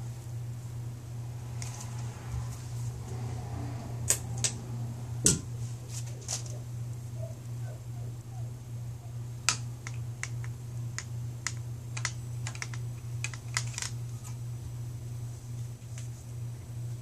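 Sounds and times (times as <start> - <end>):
steady low hum: 0.0 - 17.0
blind parts clicking and clacking: 9.5 - 14.4.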